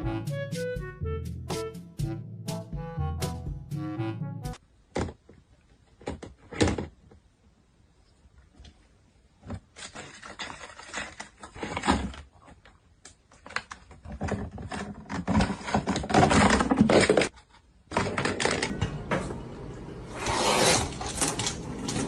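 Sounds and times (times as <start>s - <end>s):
rustling: 8.0s - 17.8s.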